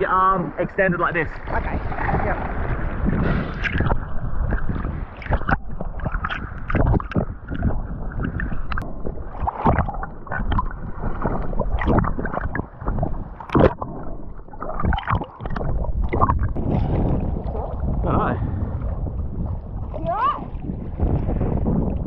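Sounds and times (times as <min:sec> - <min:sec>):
sea water sloshing and splashing: 0:01.3 - 0:22.0.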